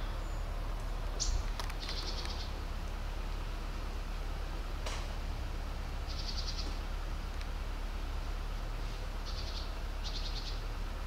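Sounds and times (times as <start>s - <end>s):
low outdoor rumble: 0.0s - 11.0s
small bird trilling: 1.2s - 2.6s, 6.1s - 6.7s.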